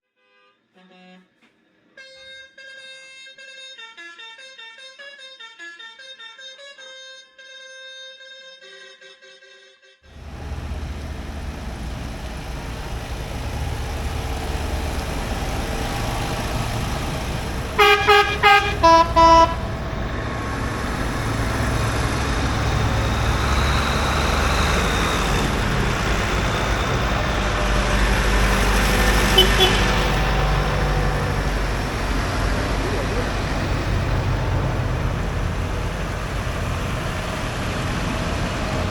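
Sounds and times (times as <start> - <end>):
vehicle horn toots: 0.2 - 1.4, 15.4 - 34.7
tractor engine running: 10.1 - 38.9.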